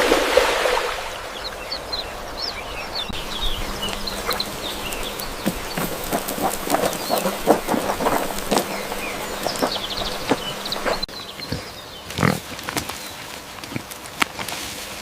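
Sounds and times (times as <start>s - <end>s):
small birds chirping: 1.1s - 14.1s
pigs grunting: 3.2s - 12.8s.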